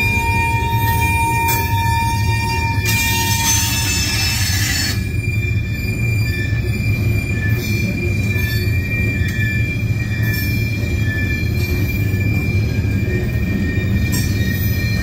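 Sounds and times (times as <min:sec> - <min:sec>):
high wheel squeal: 0:00.0 - 0:15.0
train wheels rumbling on rail: 0:00.0 - 0:15.0
hissing screech: 0:01.5 - 0:09.4.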